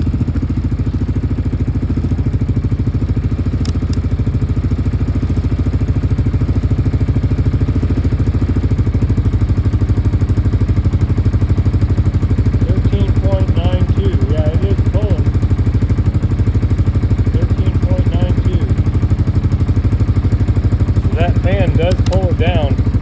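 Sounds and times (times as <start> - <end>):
engine idling: 0.0 - 23.0
faint clicks: 3.6 - 4.1, 21.7 - 22.4.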